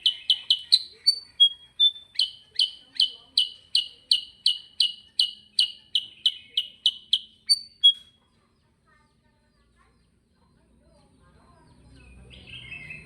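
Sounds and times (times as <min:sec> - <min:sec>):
bird whistled notes: 0:00.0 - 0:08.1
bird chirping: 0:00.0 - 0:13.0.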